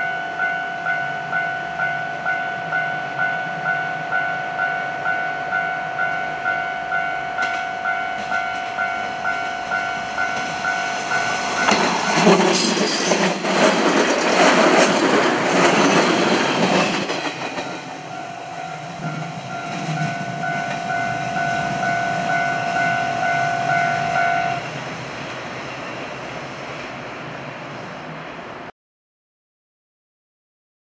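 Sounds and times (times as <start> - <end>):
high ringing tone: 0.0 - 13.4, 15.6 - 24.8
train passing with wheel noise: 0.0 - 28.7.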